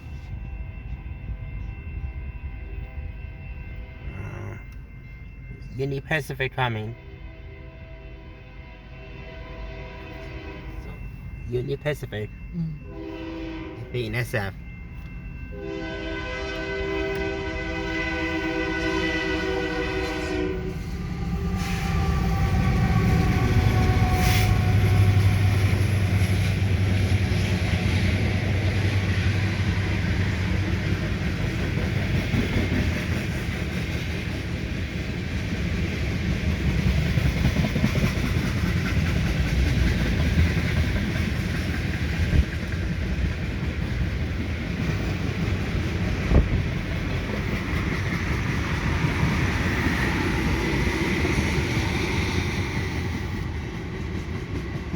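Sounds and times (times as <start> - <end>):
diesel locomotive engine hum: 0.0 - 54.9.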